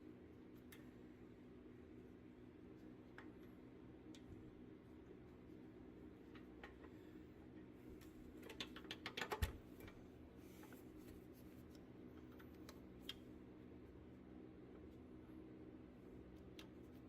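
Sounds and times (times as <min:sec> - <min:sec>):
faint room hum: 0:00.0 - 0:17.0
light clicks and taps: 0:16.3 - 0:17.0.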